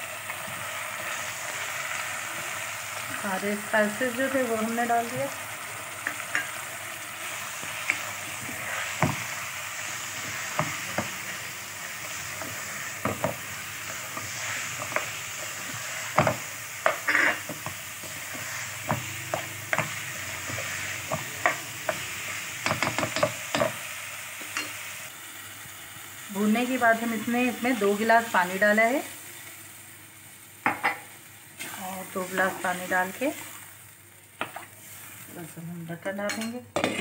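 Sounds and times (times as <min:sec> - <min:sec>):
food sizzling in a pot: 0:00.0 - 0:37.0
spoon knocking and scraping pot: 0:06.0 - 0:06.6, 0:16.1 - 0:22.0, 0:22.6 - 0:23.8.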